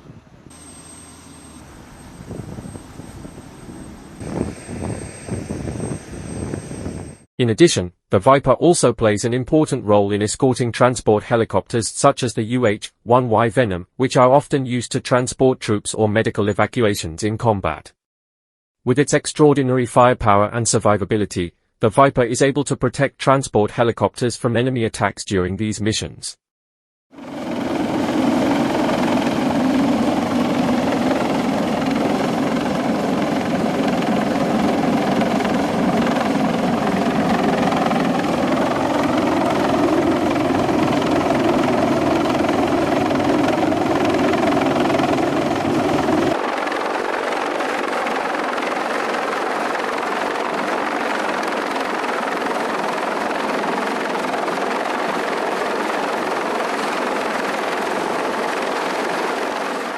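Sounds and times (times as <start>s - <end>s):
helicopter rotor and turbine: 0.1s - 7.3s, 27.1s - 59.9s.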